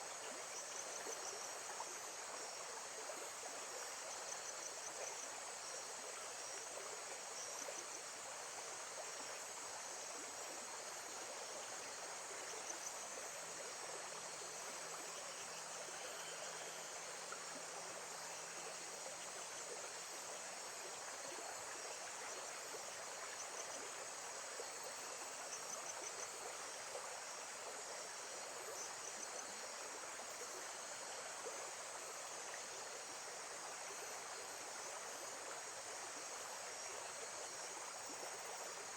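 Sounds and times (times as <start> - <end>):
insects chirping trills: 0.1 - 38.9.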